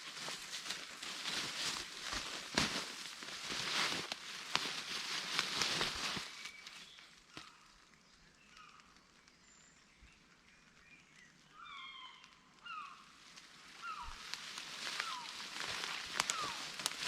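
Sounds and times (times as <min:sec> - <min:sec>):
faint bird chirps: 0:06.2 - 0:13.2, 0:13.8 - 0:14.3.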